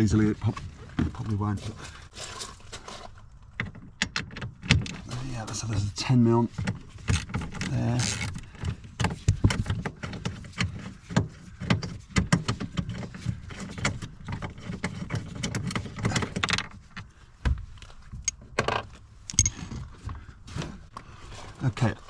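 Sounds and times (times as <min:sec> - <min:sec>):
hand tools clicking and rattling: 0:18.2 - 0:19.8.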